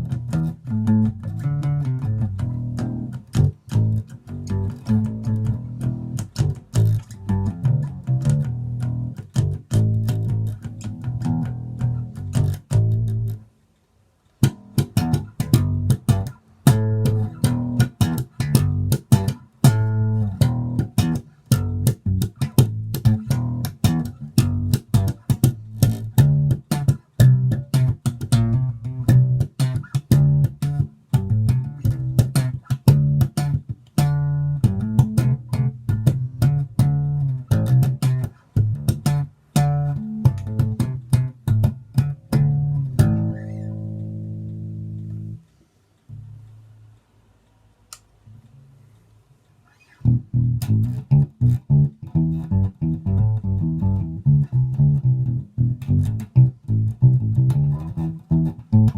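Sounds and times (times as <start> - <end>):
electric bass riff: 0.0 - 13.5, 14.4 - 45.5, 50.0 - 58.9.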